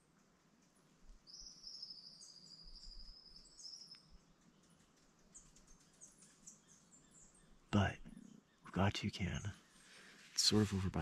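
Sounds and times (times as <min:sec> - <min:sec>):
faint high bird trill: 0:01.2 - 0:10.0.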